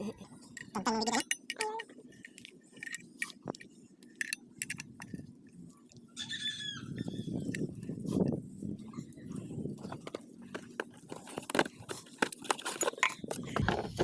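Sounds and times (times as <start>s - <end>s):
hand tools clinking on metal: 0.5s - 3.4s.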